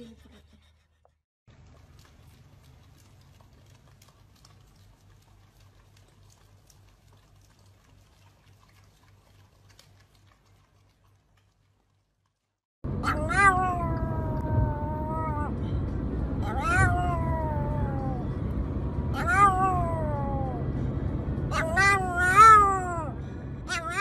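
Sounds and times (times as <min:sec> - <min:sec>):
dogs licking wet clicking: 0:01.5 - 0:12.6
low steady hum: 0:01.5 - 0:24.0.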